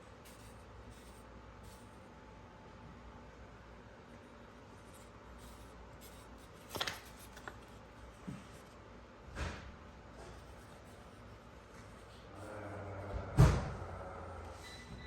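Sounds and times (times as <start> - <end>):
scrapes and clicks of handling: 6.1 - 7.8.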